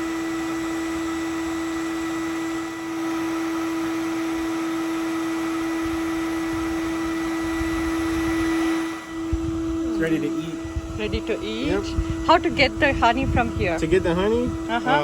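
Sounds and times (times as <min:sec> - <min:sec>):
small motor humming: 0:00.0 - 0:15.0.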